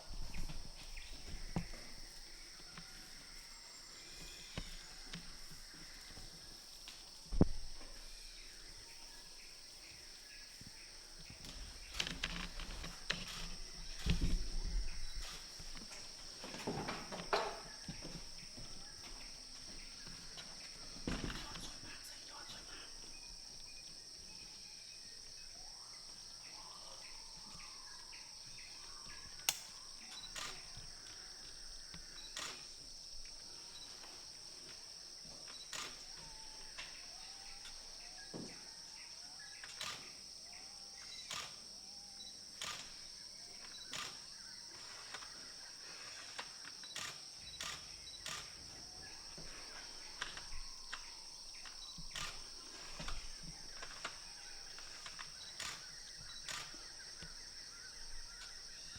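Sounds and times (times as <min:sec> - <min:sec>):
high-pitched insect drone: 0:00.4 - 0:22.7
sharp clicks: 0:42.6 - 0:43.0.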